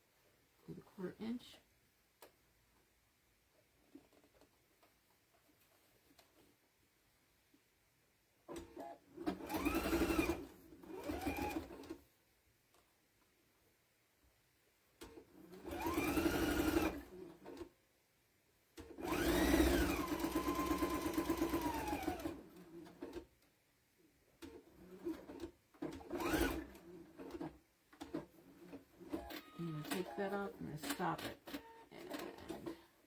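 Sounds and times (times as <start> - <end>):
electric sewing machine stitching: 8.5 - 12.0, 15.1 - 17.7, 18.8 - 23.2, 24.4 - 32.9.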